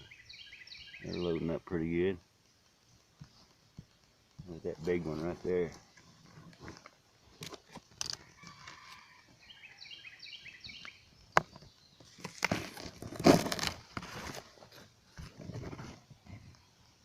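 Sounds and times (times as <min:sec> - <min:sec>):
bird chirping: 0:00.0 - 0:01.7, 0:08.3 - 0:12.4.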